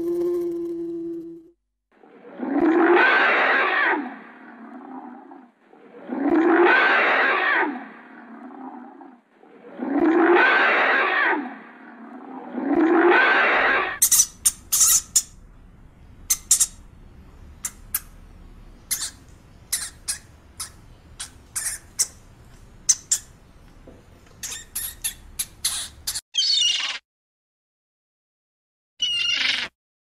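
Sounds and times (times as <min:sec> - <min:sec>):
animal calling rising and falling: 0:02.7 - 0:14.0, 0:26.4 - 0:27.0, 0:29.0 - 0:29.7.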